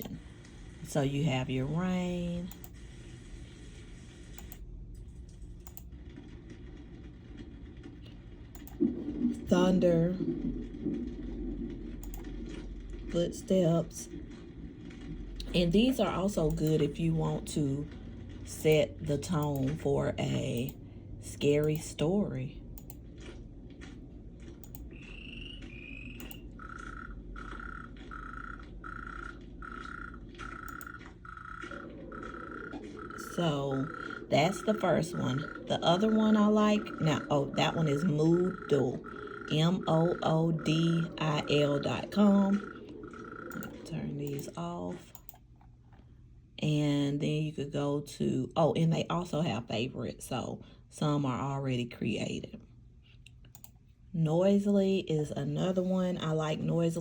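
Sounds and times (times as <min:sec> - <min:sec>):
mouse clicks: 0:24.6 - 0:26.4
repeating croaking call: 0:24.9 - 0:44.0.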